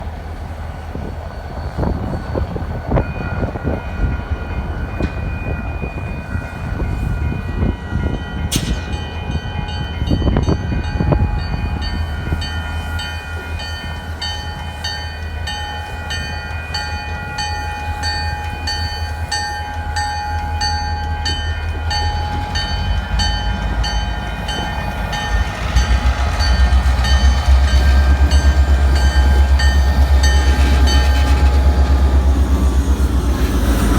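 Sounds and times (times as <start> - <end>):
constant engine whine: 0.0 - 33.9
diesel locomotive engine rumble: 0.0 - 33.9
sharp metal clanks: 8.5 - 10.7.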